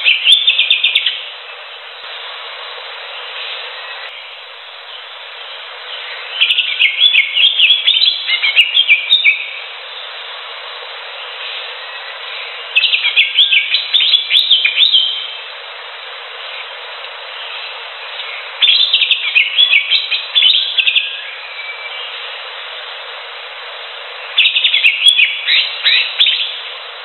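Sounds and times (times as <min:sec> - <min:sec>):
steady hiss: 0:00.0 - 0:27.0
bird singing whistled phrases: 0:06.0 - 0:09.6, 0:11.8 - 0:15.3, 0:18.2 - 0:22.1, 0:24.4 - 0:26.6.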